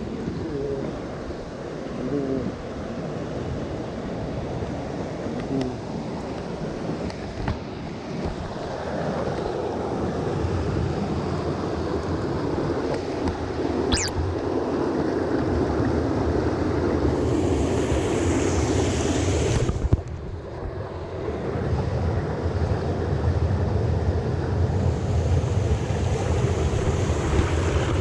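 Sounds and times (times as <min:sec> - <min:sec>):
mountain stream water rushing: 0:05.8 - 0:20.0, 0:24.7 - 0:28.0
wind buffeting microphone: 0:23.5 - 0:28.0.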